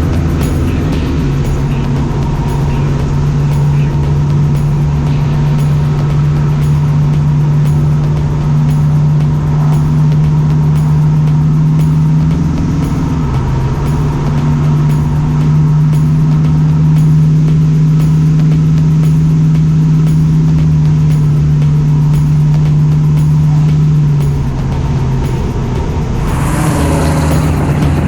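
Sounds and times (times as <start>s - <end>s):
car engine running: 25.8s - 28.0s.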